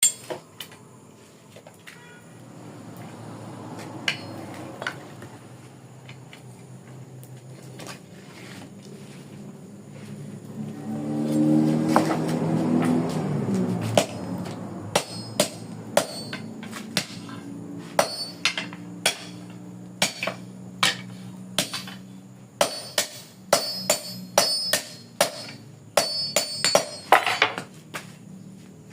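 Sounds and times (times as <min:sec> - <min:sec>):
hammer striking steel coil: 0:14.9 - 0:22.0, 0:22.6 - 0:27.2.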